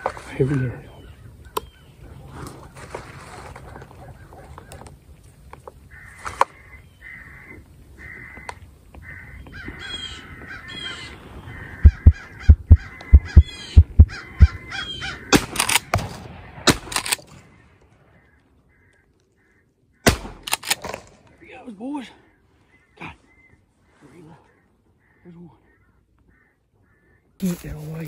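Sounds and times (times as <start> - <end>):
crows cawing: 5.9 - 16.0, 17.0 - 20.8, 22.1 - 27.4
heavy low thumps on microphone: 11.8 - 14.6.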